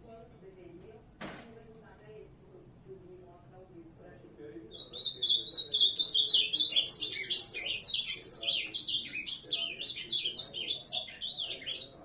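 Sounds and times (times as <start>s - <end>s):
bird singing whistled notes: 4.7s - 12.0s.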